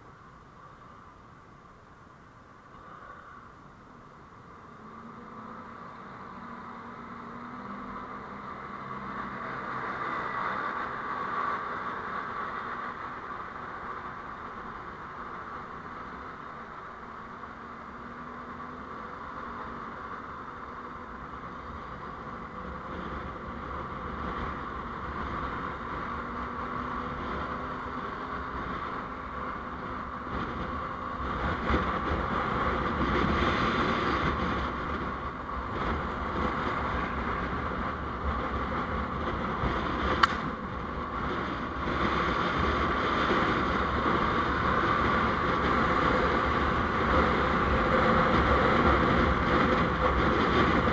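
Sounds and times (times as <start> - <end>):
vehicle road and engine noise: 0.0 - 50.9
sharp click: 40.2 - 40.5.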